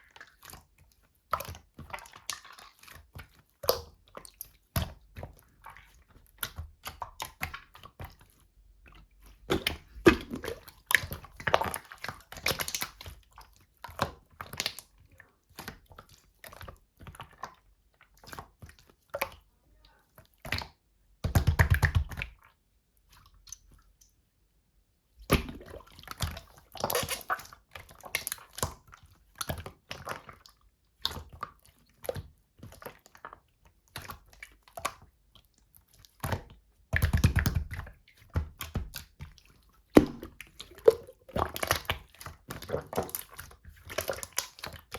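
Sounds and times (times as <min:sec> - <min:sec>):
slime squelching and clicking: 0:00.0 - 0:19.5, 0:20.1 - 0:24.2, 0:25.2 - 0:44.9
air bubbles popping: 0:09.5 - 0:11.6, 0:25.3 - 0:27.4, 0:40.0 - 0:43.4.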